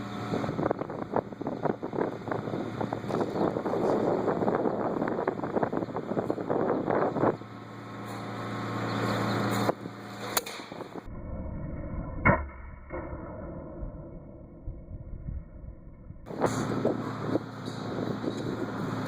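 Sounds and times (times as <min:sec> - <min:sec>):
wind buffeting microphone: 0:00.0 - 0:07.7, 0:09.5 - 0:11.1, 0:13.6 - 0:19.0
low mechanical hum: 0:00.0 - 0:19.0.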